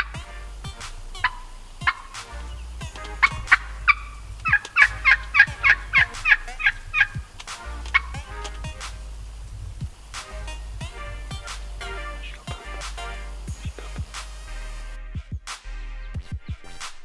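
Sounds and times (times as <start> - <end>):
turkey hen yelping: 1.1 - 8.6.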